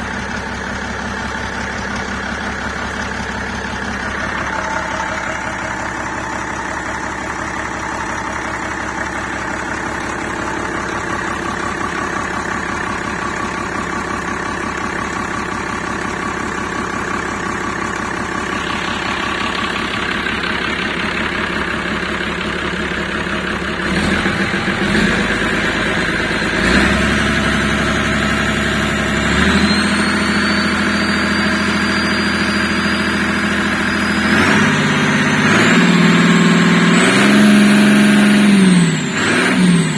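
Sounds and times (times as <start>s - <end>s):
diesel engine idling and revving: 0.0s - 39.9s
high whine rising in pitch: 18.3s - 22.0s.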